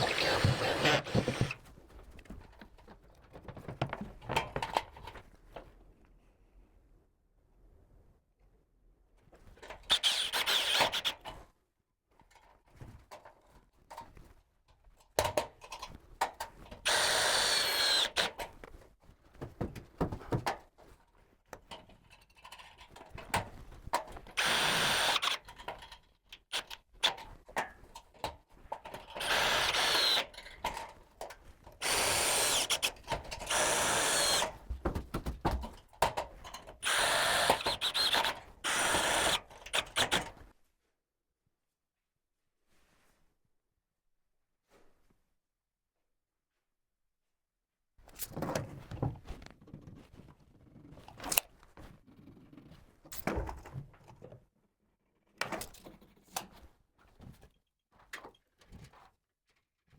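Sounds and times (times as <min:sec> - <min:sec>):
power drill motor whine: 0:00.0 - 0:01.5, 0:33.5 - 0:34.5, 0:36.8 - 0:40.1.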